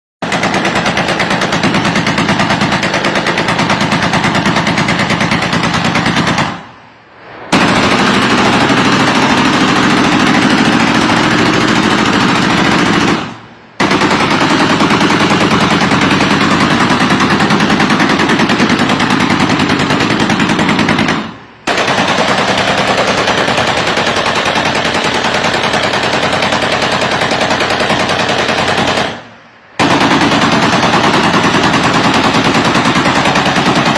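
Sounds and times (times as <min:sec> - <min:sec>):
automatic machine-gun fire: 0:00.2 - 0:06.7, 0:07.5 - 0:33.9.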